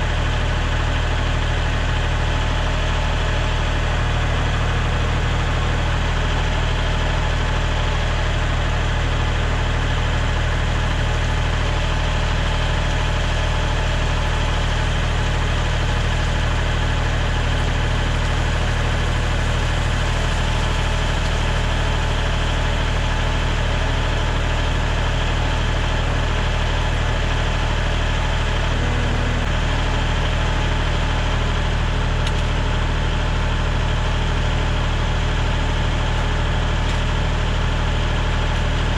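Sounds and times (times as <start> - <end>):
small engine running: 9.7 - 32.5.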